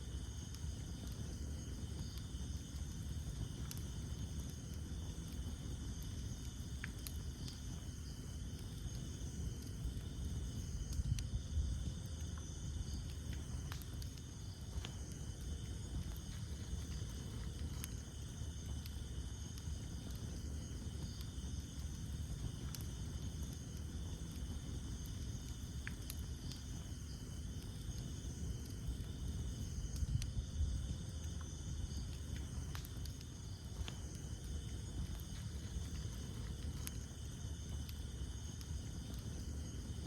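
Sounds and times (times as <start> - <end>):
night insects chorus: 0.0 - 40.0
wood fire crackling and popping: 0.0 - 40.0.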